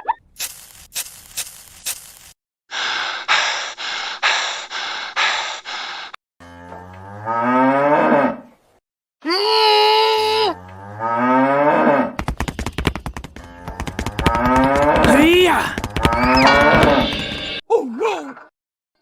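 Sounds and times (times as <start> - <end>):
cow mooing: 6.4 - 8.4, 10.4 - 12.1.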